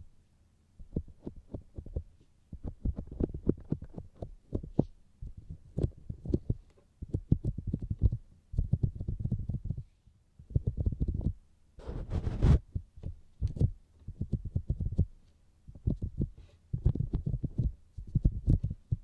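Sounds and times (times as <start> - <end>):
fingertips tapping microphone: 0.8 - 9.9, 10.5 - 19.0
rubbing rustle: 11.8 - 12.6.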